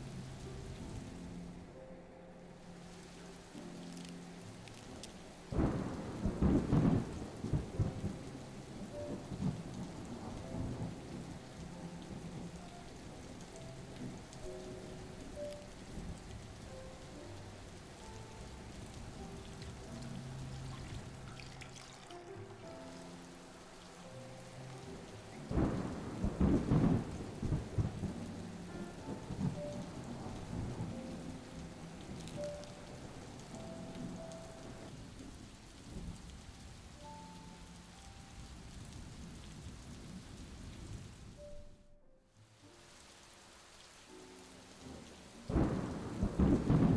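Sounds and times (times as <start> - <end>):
steady rain: 0.0 - 46.9
thunder clap and rumble: 4.9 - 14.4, 25.4 - 33.1, 44.8 - 46.9.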